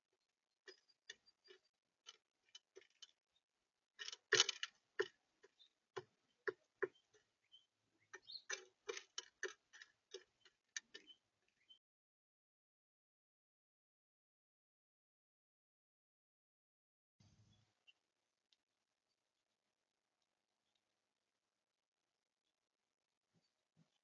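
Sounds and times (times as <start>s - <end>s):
birds pecking at seed: 0.6s - 3.2s, 4.0s - 11.6s.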